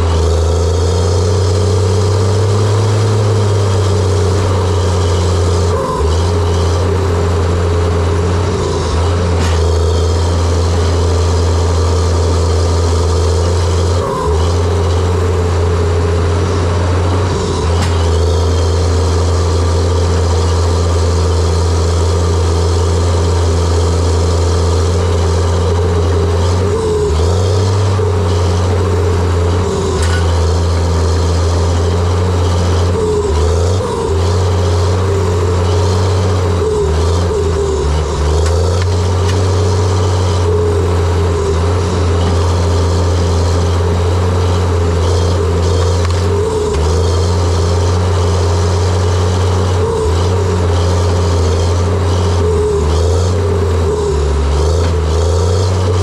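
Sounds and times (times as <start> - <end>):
dozer diesel engine running hard: 0.0 - 56.0.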